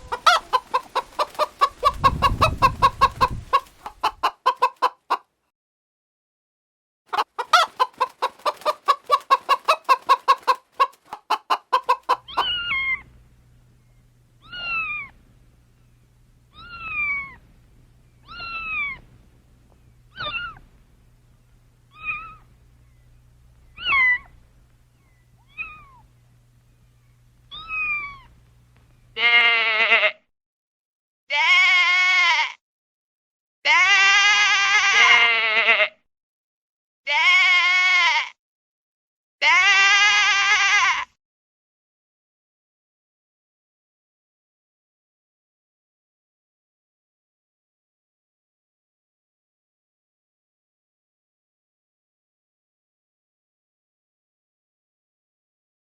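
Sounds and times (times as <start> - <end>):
hen clucking: 0.0 - 5.3, 7.1 - 13.1, 18.2 - 19.1, 19.7 - 20.7, 21.9 - 23.0, 23.6 - 26.2, 27.5 - 28.4
cat meowing: 12.3 - 13.0, 14.4 - 15.1, 16.5 - 17.4, 18.2 - 19.0, 20.1 - 20.6, 21.9 - 22.4, 25.5 - 26.0, 27.5 - 28.3, 33.7 - 35.4
goat bleating: 29.2 - 30.2, 31.3 - 32.6, 33.7 - 36.0, 37.1 - 38.4, 39.4 - 41.1.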